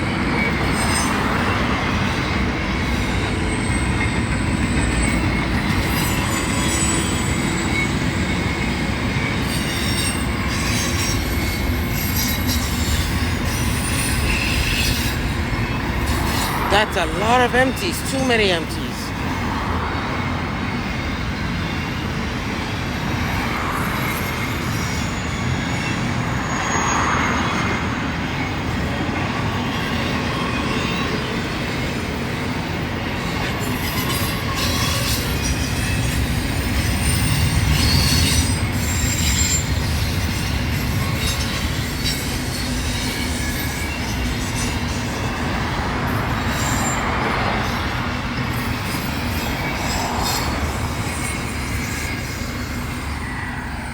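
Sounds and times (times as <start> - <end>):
freight train wheels rumbling: 0.0 - 53.9
high-pitched wheel squeal: 23.4 - 27.9, 33.6 - 45.0, 46.4 - 53.9.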